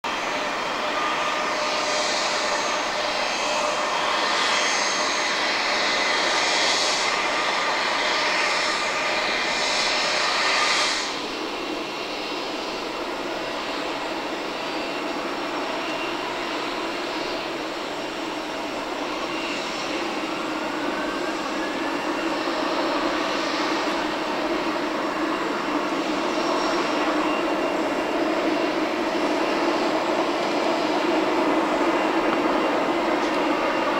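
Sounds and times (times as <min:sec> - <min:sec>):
jet engines at takeoff thrust: 0:00.0 - 0:33.9.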